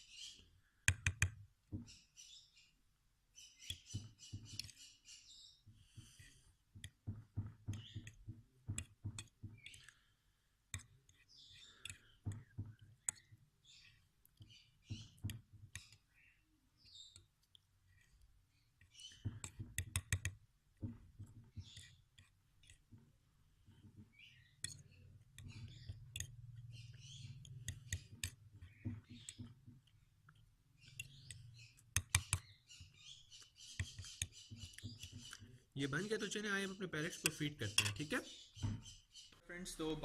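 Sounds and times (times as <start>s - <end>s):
fork scraping and tapping bowl: 37.2s - 38.1s.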